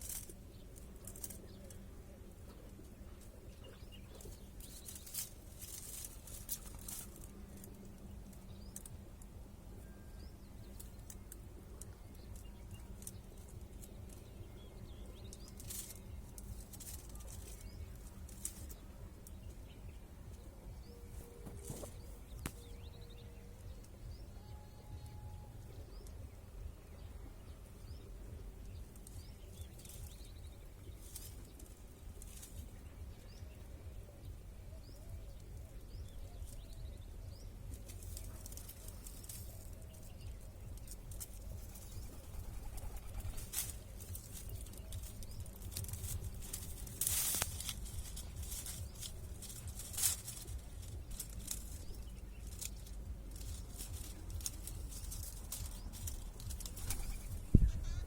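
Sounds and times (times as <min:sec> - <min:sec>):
birds chirping faintly: 0:00.0 - 0:58.0
steady low rumble: 0:00.0 - 0:58.0
short rustling bursts: 0:37.7 - 0:57.9.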